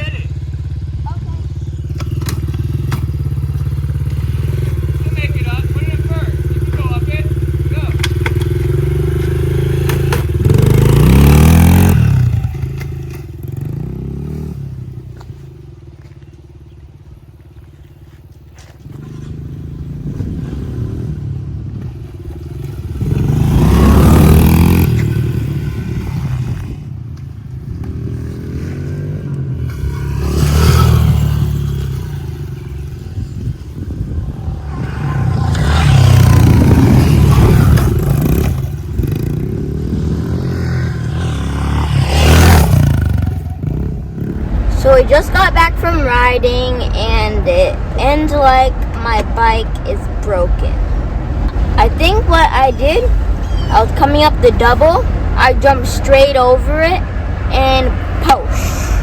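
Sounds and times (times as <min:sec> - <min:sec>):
dirt bike revving: 0:00.0 - 0:59.0.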